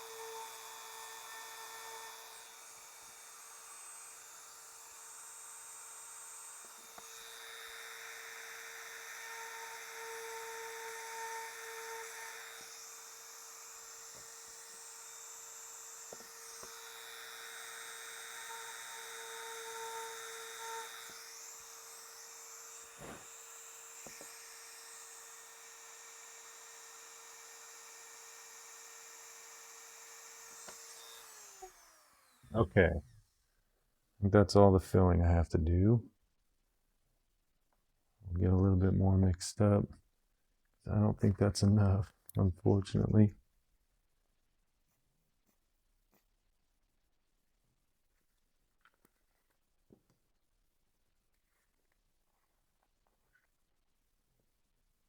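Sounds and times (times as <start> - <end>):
rotary tool grinding: 0.0 - 32.5.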